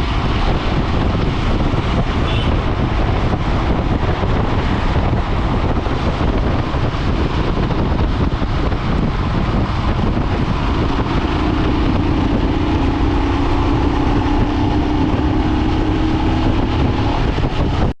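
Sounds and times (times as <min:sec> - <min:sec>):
motorcycle engine: 0:00.0 - 0:17.9
wind buffeting microphone: 0:00.0 - 0:18.0.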